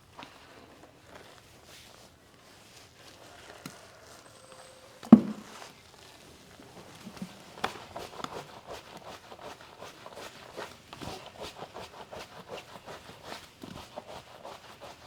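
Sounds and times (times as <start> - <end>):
light knocks and taps: 5.1 - 5.5
loud dull thump: 5.1 - 5.5.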